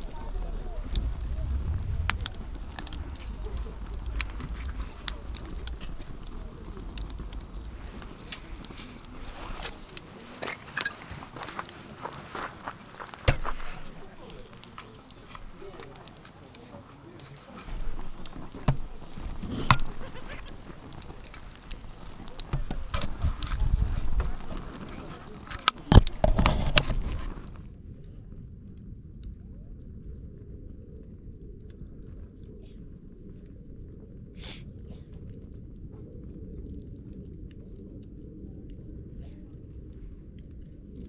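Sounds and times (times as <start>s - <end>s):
low rumble: 0.0s - 11.4s
campfire crackling and popping: 0.0s - 27.7s.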